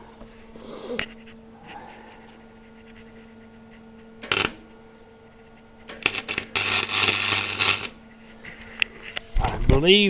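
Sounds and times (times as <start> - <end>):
steady hum: 0.0 - 9.3
welding arc crackling: 4.2 - 4.6, 5.9 - 8.0.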